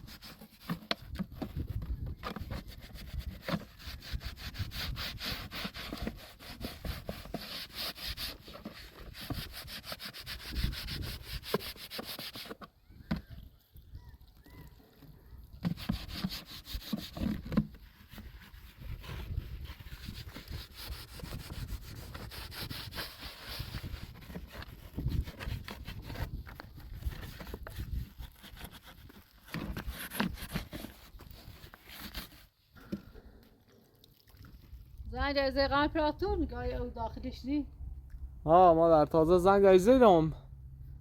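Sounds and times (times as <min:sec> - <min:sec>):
scraping and rubbing strokes: 0:00.0 - 0:12.7, 0:15.6 - 0:32.6.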